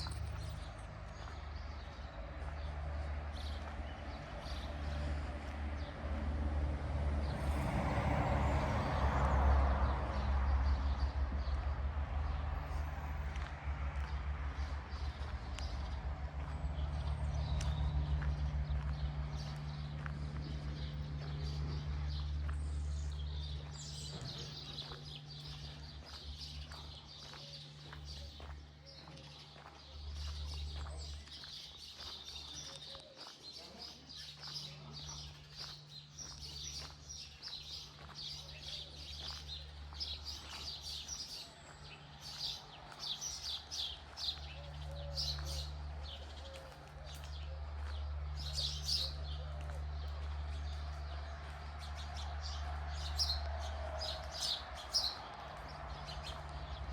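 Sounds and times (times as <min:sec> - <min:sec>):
steady low rumble: 0:00.0 - 0:28.9
small birds chirping: 0:12.7 - 0:50.9.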